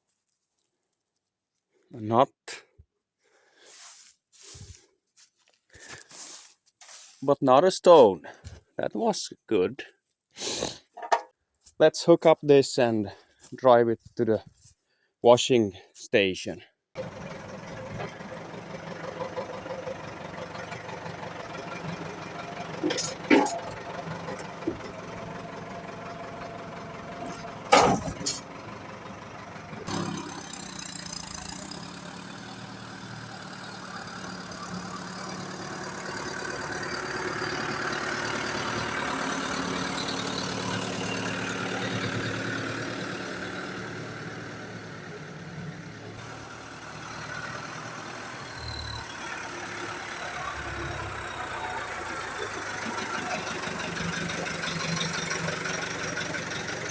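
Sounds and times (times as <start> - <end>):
tractor diesel engine: 3.5 - 4.8, 5.7 - 9.6, 17.0 - 56.9
sharp metal clanks: 27.4 - 28.5.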